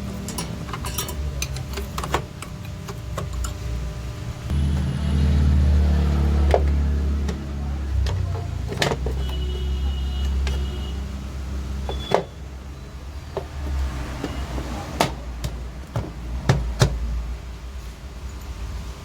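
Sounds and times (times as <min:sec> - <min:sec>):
motorcycle engine running: 0:04.5 - 0:08.0.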